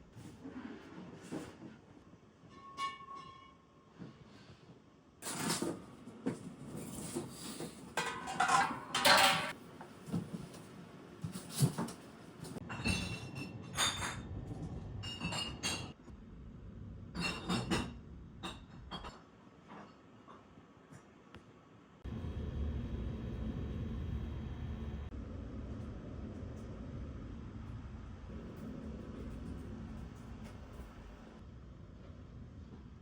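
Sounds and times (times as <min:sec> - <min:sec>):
dishes and utensils clattering: 0:05.2 - 0:09.6, 0:11.2 - 0:14.4, 0:15.0 - 0:16.0, 0:17.1 - 0:20.5.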